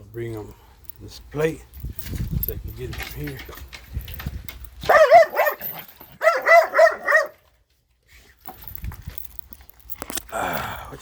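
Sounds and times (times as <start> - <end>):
dog yelping barks: 4.8 - 7.5.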